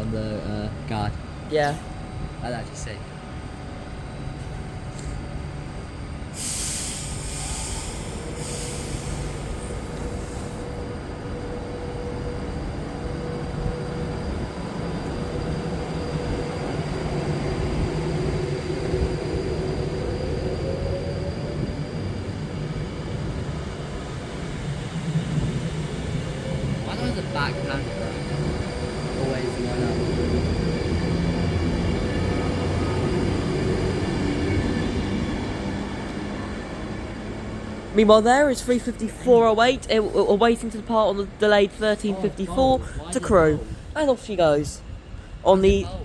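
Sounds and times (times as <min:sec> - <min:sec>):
train wheels rumbling on rails: 0:00.0 - 0:46.0
air hiss: 0:06.3 - 0:10.8.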